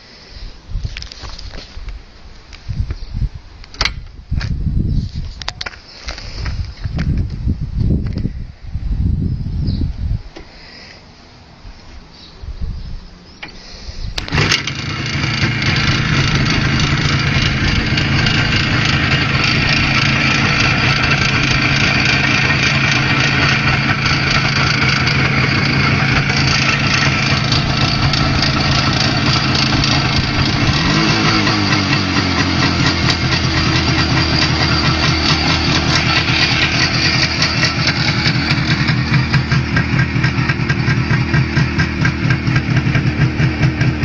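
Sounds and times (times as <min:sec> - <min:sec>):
motorcycle engine starting and idling: 0:13.4 - 0:44.0
engine knock: 0:14.3 - 0:44.0.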